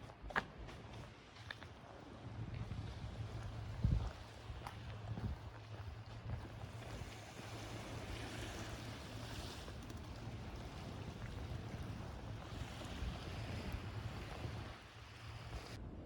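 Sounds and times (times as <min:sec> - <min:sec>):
wind on microphone: 0:02.4 - 0:16.0
waves washing: 0:06.6 - 0:15.8.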